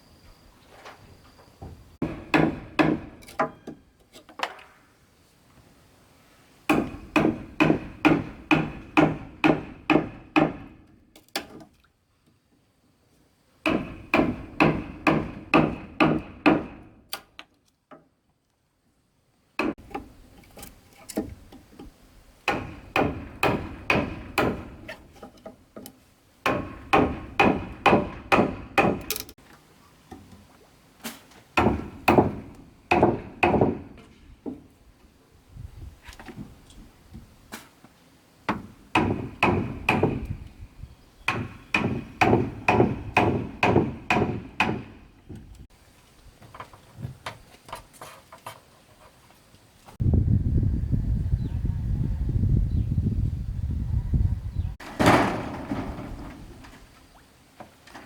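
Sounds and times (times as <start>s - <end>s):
hammer driving nails into wood: 2.0s - 3.6s, 6.7s - 10.8s, 13.7s - 17.3s, 22.5s - 25.0s, 26.5s - 29.4s, 38.5s - 40.4s, 41.3s - 45.0s.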